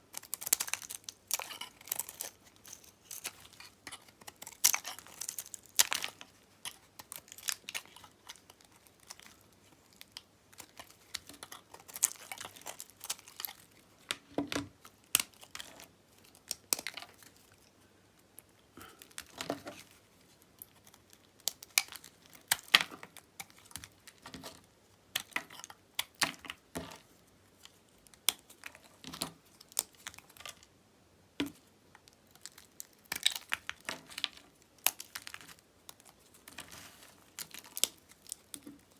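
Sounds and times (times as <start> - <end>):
knife cutting soap: 0.1 - 15.9.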